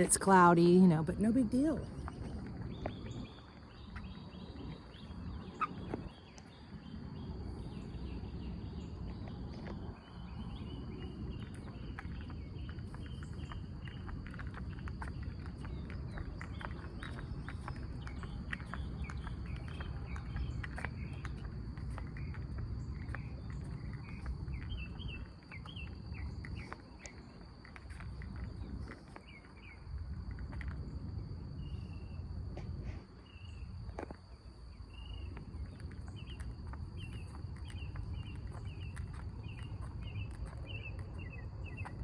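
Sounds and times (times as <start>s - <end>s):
birds chirping: 0.0s - 29.9s, 33.2s - 42.0s
insects trilling: 0.0s - 42.0s
low outdoor rumble: 0.0s - 42.0s
footsteps: 9.0s - 30.9s.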